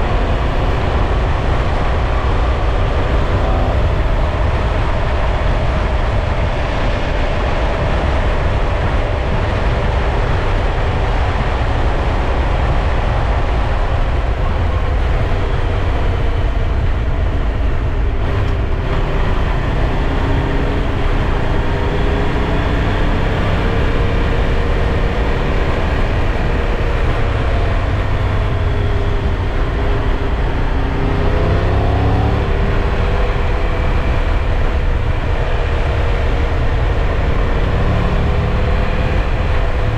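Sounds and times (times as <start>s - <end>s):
low rumble of wind: 0.0s - 39.9s
motorcycle engine under way: 12.9s - 39.9s.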